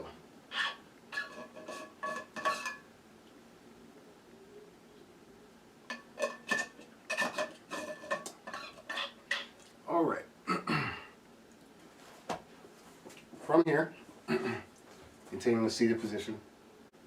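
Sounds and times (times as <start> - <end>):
tableware clinking: 0.6 - 2.9, 5.9 - 9.7.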